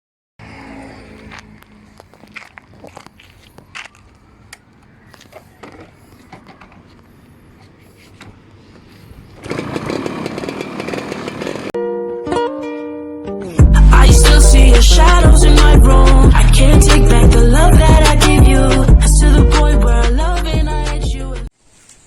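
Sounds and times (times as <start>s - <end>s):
small motor running: 9.4s - 11.7s
music: 11.8s - 21.5s.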